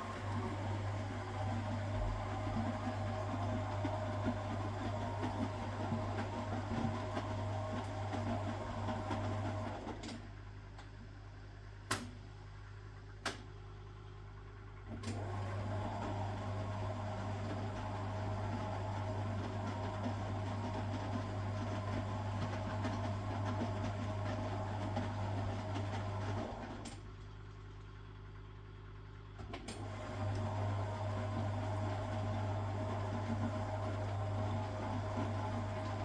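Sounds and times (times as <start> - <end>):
washing machine motor humming: 0.0 - 9.9, 14.9 - 26.8, 29.6 - 36.0.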